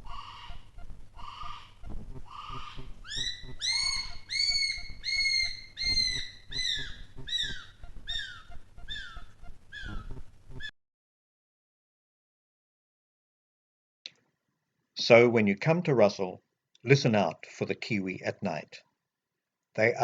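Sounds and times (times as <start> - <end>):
bird guttural rasps: 0.0 - 10.7
bird shrill whistles: 2.5 - 10.1.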